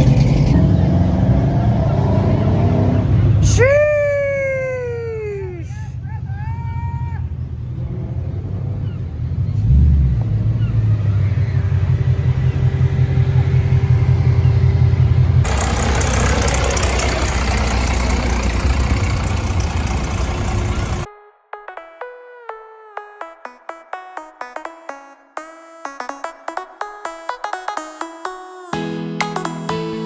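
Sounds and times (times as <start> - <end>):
car engine rumbling: 0.0 - 21.1.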